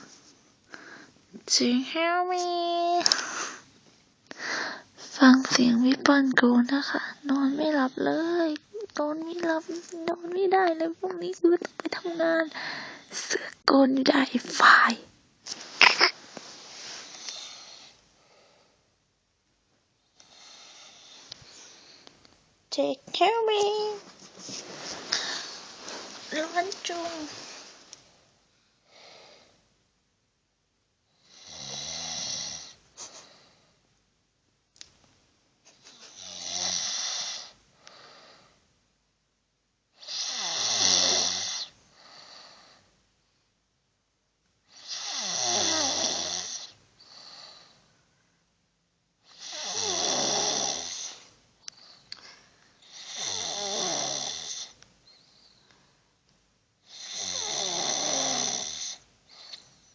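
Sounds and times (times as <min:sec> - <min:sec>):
soft breath: 0:00.0 - 0:01.2, 0:04.3 - 0:05.2, 0:12.5 - 0:13.6, 0:15.5 - 0:19.0, 0:20.2 - 0:22.2, 0:24.4 - 0:29.7, 0:37.3 - 0:38.6, 0:55.0 - 0:56.1
person snoring heavily: 0:31.2 - 0:32.8, 0:36.1 - 0:37.5, 0:40.0 - 0:41.7, 0:44.8 - 0:47.6, 0:49.3 - 0:51.2, 0:52.9 - 0:54.8, 0:56.9 - 0:59.0.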